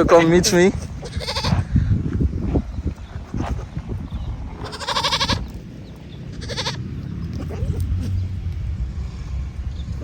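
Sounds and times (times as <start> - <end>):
goat bleating: 0.1 - 1.7, 4.6 - 5.6, 6.2 - 8.2
low rumble: 1.1 - 10.0.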